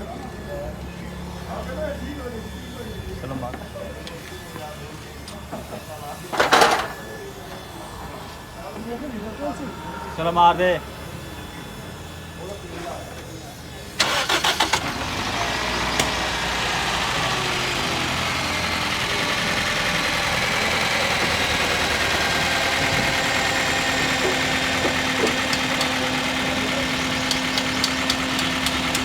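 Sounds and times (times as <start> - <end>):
car engine idling: 13.8 - 29.0.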